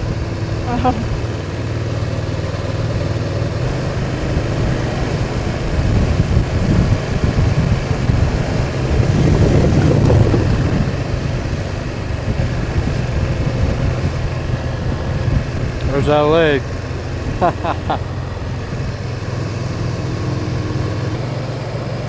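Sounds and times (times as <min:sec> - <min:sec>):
motorcycle engine running: 0:00.0 - 0:22.0
wind rushing over microphone: 0:03.5 - 0:17.5.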